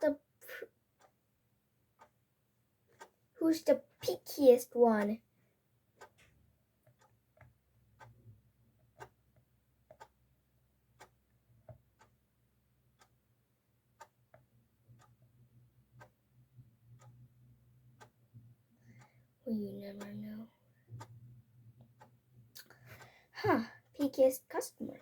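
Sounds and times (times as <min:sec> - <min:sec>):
clock ticking: 0:01.0 - 0:01.2, 0:02.0 - 0:02.2, 0:02.9 - 0:05.2, 0:06.0 - 0:10.3, 0:10.9 - 0:12.2, 0:12.8 - 0:13.2, 0:13.8 - 0:25.0.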